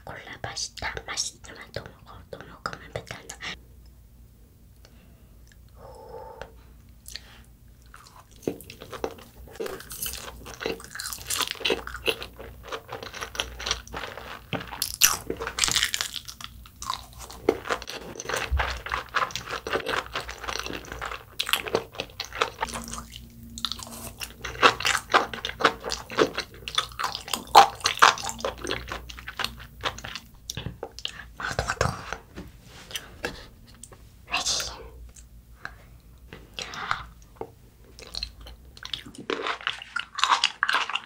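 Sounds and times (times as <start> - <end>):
wet chewing mouth clicks: 15.6 - 32.2.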